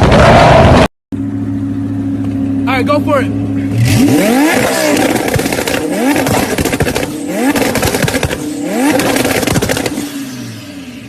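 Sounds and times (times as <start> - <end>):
exhaust crackling and popping: 0.0 - 0.9, 3.7 - 10.3
car engine revving: 0.0 - 11.0.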